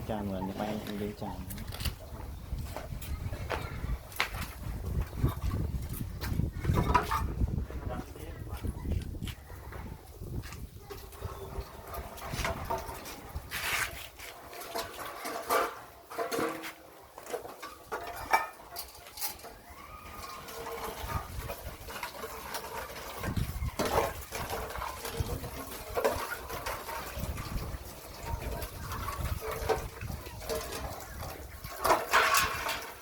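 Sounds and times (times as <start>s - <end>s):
puppies feeding: 0.0s - 4.1s, 8.6s - 15.9s, 16.9s - 33.0s.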